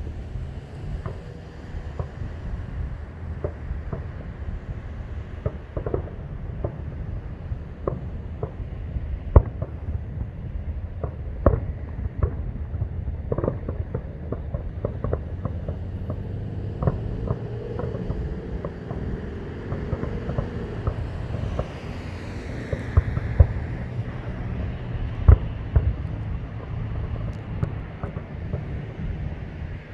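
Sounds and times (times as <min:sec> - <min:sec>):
wind on microphone: 0:00.0 - 0:29.9
distant fireworks bangs: 0:00.2 - 0:29.9
low rumble: 0:11.6 - 0:29.9.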